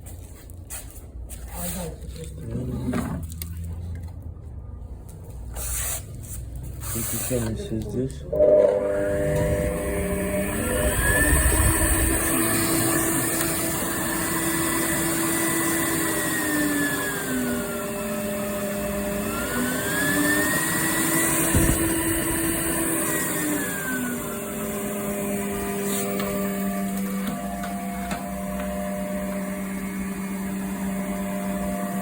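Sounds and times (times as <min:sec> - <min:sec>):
vacuum cleaner motor running: 0:07.0 - 0:32.0.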